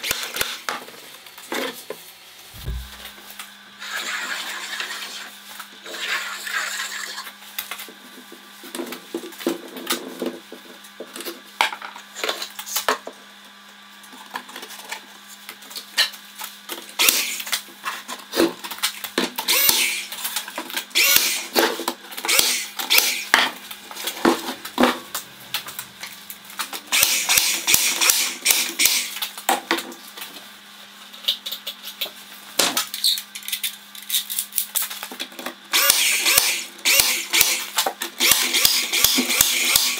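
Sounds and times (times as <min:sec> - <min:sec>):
steady hum: 0:02.1 - 0:03.8
power tool bursts: 0:17.0 - 0:17.5, 0:19.4 - 0:20.1, 0:21.0 - 0:21.6, 0:22.3 - 0:23.4, 0:26.9 - 0:29.2, 0:35.7 - 0:39.9.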